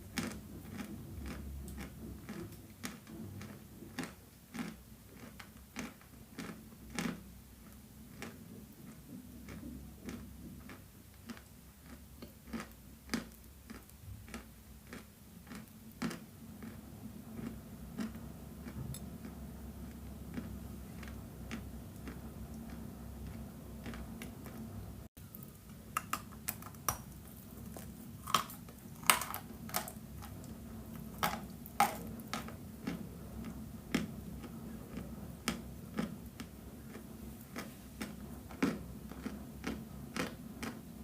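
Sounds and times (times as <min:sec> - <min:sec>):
low steady hum: 0:00.0 - 0:41.0
chalk being bitten and chewed: 0:00.2 - 0:16.8.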